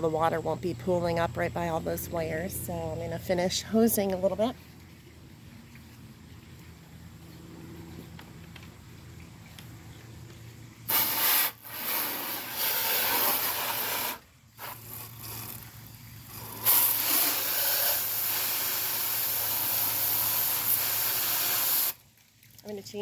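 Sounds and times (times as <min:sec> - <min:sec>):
hose spraying water: 0:10.8 - 0:23.0.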